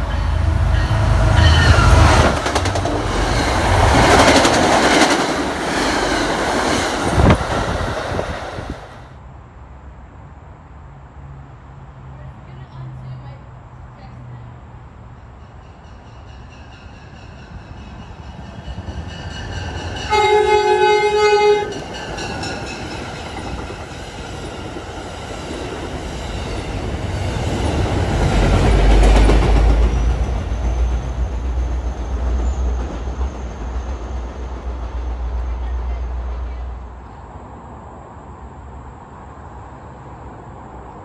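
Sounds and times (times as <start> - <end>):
train horn blast: 0.0 - 3.3, 19.9 - 22.3
train wheels rumbling and clacking: 0.0 - 8.9, 15.2 - 36.9.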